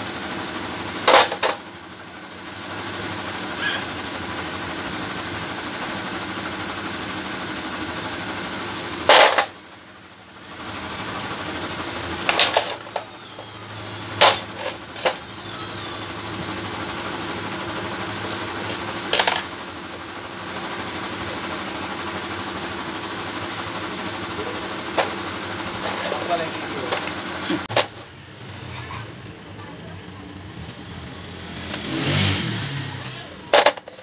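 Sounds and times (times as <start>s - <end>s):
metal parts clinking: 1.1s - 1.6s, 9.0s - 9.6s, 12.2s - 15.3s, 18.6s - 19.5s, 33.5s - 34.0s.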